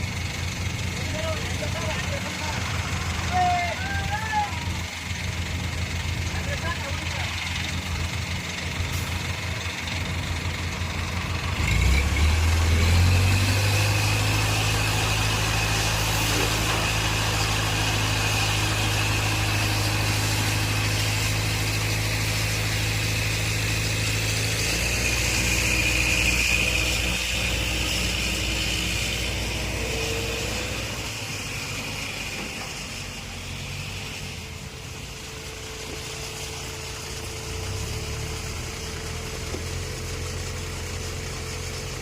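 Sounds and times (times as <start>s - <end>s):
heavy diesel engine running: 0.0s - 42.0s
steady high whine: 12.4s - 41.8s.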